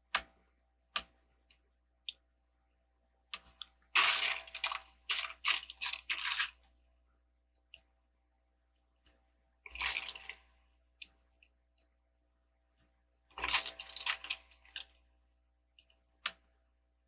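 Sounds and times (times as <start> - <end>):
plastic bricks clicking: 4.0 - 6.6
rattle of pieces being sifted: 4.0 - 6.6.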